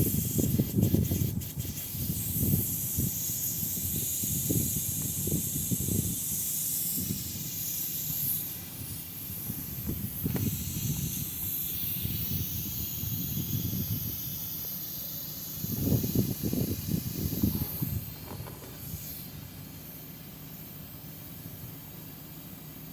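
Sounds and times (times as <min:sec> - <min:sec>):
gas hissing: 0:00.0 - 0:22.9
low rumbling bumps: 0:15.6 - 0:19.0.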